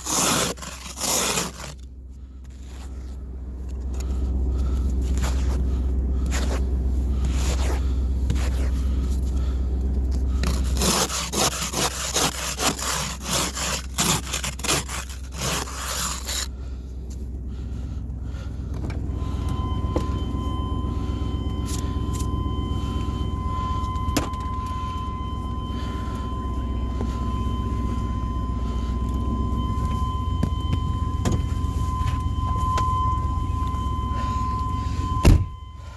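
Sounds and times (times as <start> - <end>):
irregular scraping strokes: 0.0 - 1.8, 10.4 - 16.5
truck engine idling: 0.0 - 35.9
steady high-pitched tone: 3.1 - 35.9.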